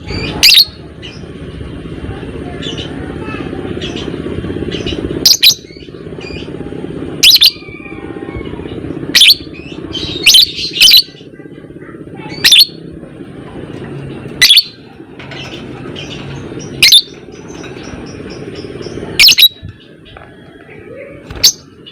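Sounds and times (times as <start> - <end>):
bird shrill calls: 0.0 - 0.8, 9.1 - 11.2, 12.3 - 12.8, 14.4 - 14.8, 15.4 - 18.6, 19.2 - 19.6
bird chattering: 0.0 - 1.3, 2.6 - 6.6, 7.2 - 11.4, 12.0 - 13.0, 14.1 - 21.9
low hum: 0.0 - 21.9.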